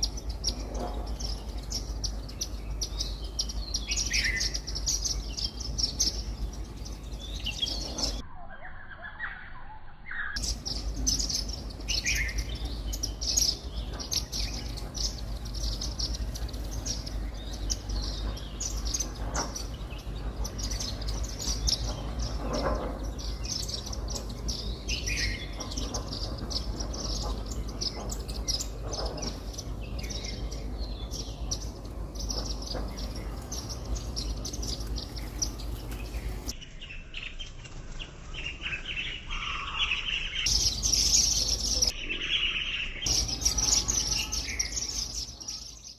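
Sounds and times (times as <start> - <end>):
flock of birds chirping: 0.0 - 45.9
low steady rumble: 9.8 - 36.6.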